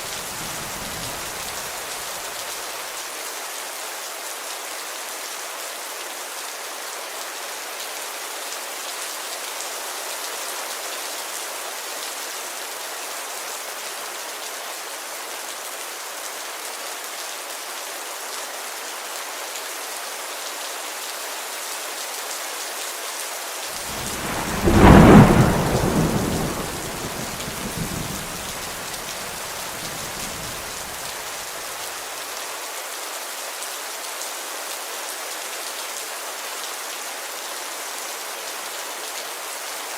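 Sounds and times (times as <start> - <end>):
heavy rain on a window: 0.0 - 17.6, 23.7 - 38.3
thunder clap rumbling: 23.8 - 31.0.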